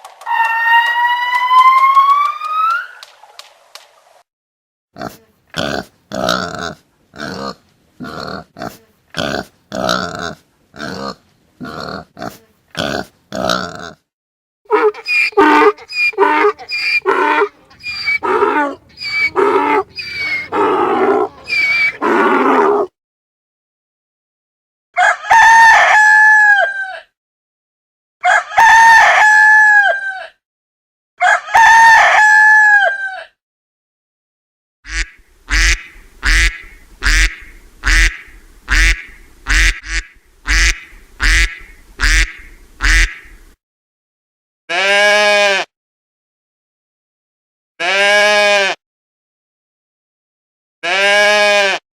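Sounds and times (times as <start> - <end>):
animal calling: 14.7 - 22.9, 34.9 - 43.5
duck quacking: 14.8 - 22.1, 34.9 - 43.5.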